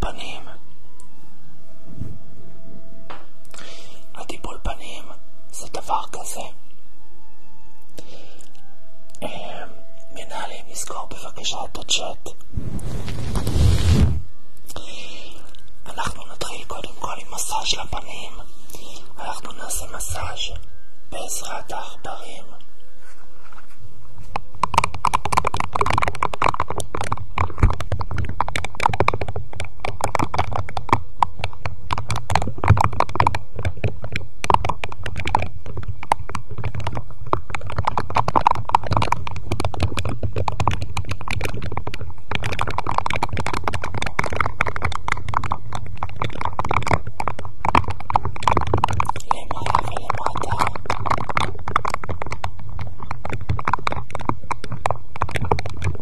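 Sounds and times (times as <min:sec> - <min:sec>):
objects rubbing and tapping microphone: 0:10.3 - 0:14.3, 0:23.0 - 0:56.0.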